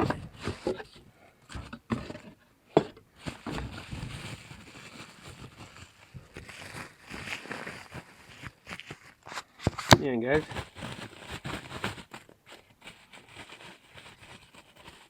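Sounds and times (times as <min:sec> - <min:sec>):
packaging rustling: 0:03.2 - 0:15.0.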